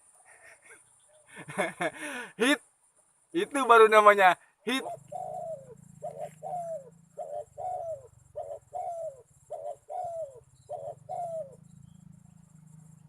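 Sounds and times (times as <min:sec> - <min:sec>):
dove cooing: 0:04.7 - 0:13.0.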